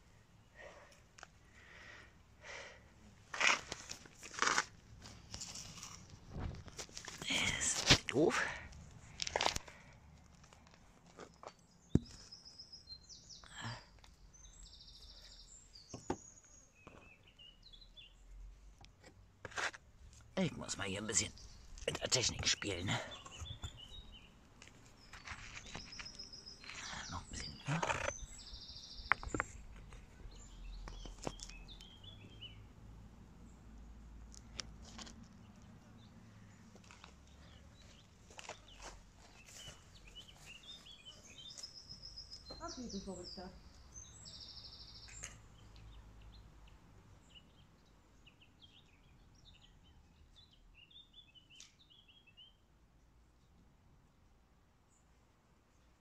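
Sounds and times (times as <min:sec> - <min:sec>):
rustling near microphone: 0:03.3 - 0:08.1
songbirds chirping: 0:05.0 - 0:56.0
faint small bird chirping: 0:11.7 - 0:18.3, 0:37.4 - 0:46.4.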